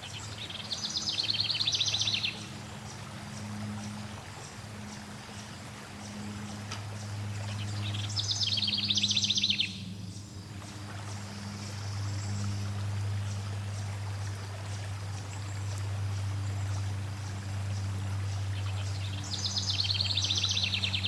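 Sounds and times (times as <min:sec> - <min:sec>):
songbird trill: 0:00.0 - 0:13.9, 0:14.7 - 0:21.0
flowing water: 0:00.0 - 0:21.0
low even hum: 0:00.0 - 0:21.0
bird chirps: 0:07.5 - 0:10.3.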